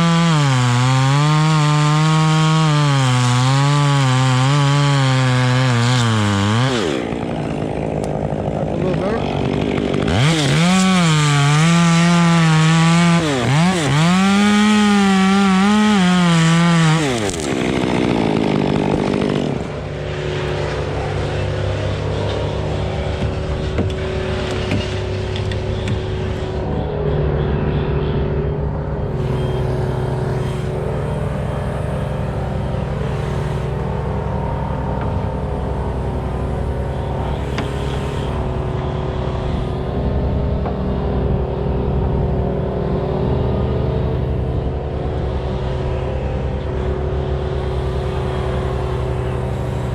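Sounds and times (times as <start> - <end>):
chainsaw running at high revs: 0.0 - 24.6, 29.1 - 49.9.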